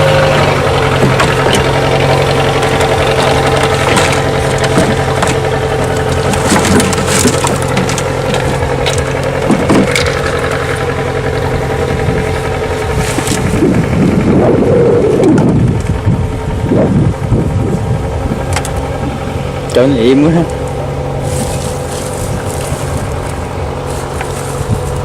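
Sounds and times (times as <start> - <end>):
small engine idling: 0.0 - 25.0
crackles and knocks: 0.2 - 14.2, 20.5 - 25.0.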